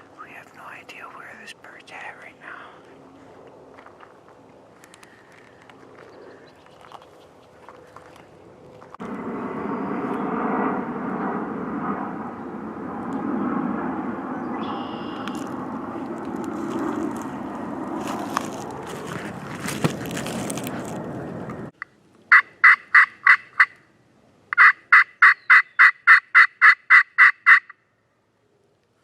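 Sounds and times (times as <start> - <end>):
steady rushing noise: 7.6 - 21.8
turkey yelps: 24.6 - 27.7.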